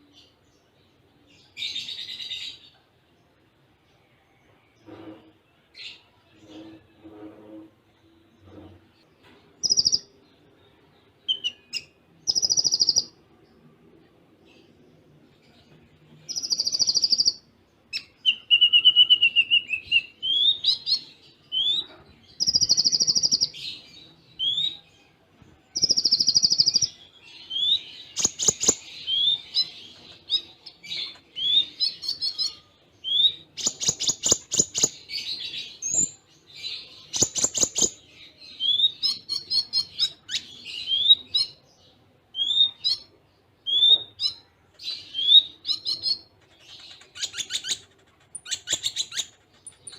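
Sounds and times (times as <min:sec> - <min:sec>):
bird dry rattling calls: 0:45.8 - 0:49.9.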